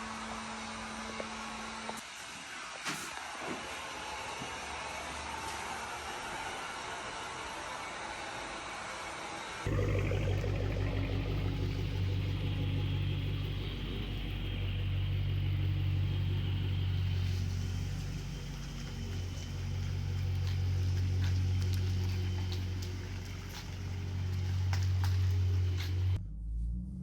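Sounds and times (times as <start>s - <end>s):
car exhaust droning: 9.7s - 26.4s.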